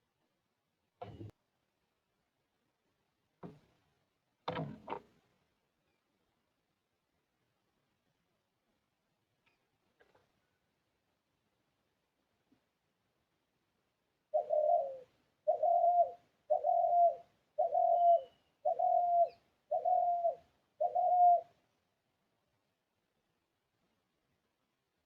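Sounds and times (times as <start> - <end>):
bird calling: 14.3 - 21.5.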